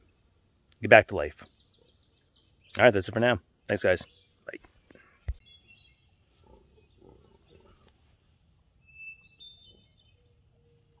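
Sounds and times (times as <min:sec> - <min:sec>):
high bird chirping: 0:00.0 - 0:07.8, 0:08.8 - 0:11.0
faint bird calls: 0:03.6 - 0:08.2.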